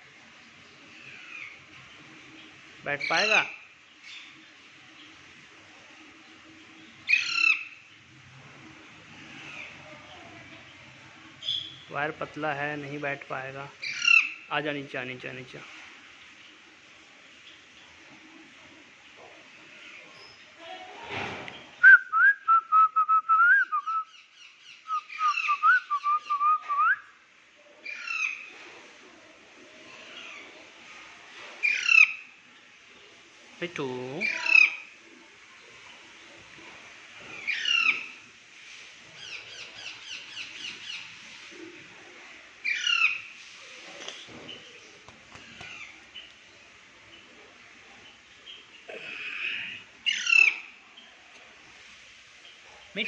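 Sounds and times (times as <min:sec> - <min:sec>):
parrot squawk: 0:50.0 - 0:50.7.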